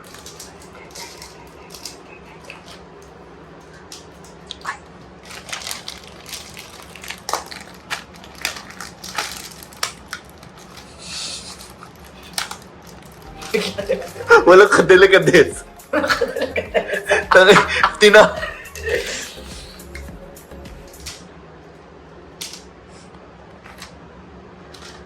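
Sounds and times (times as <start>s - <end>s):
makeup packaging clicks and crackles: 0.0s - 3.2s, 3.8s - 14.2s.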